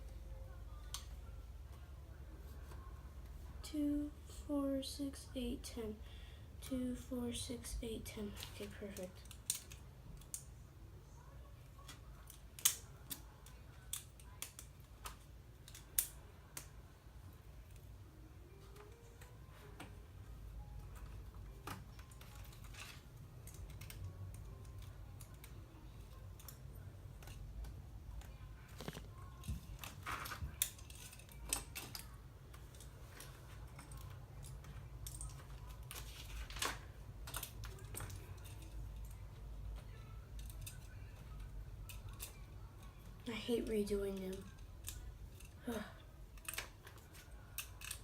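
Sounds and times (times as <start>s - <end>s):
plastic bricks clicking and snapping: 9.2s - 10.5s, 11.8s - 16.7s.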